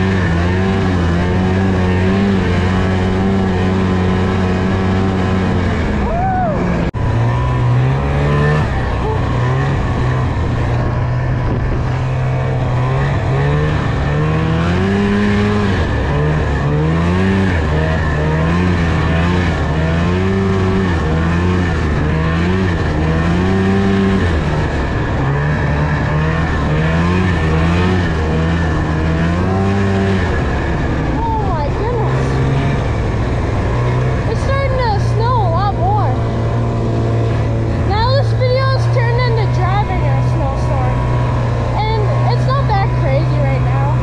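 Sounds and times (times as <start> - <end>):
snowmobile engine revving: 0.0 - 44.0.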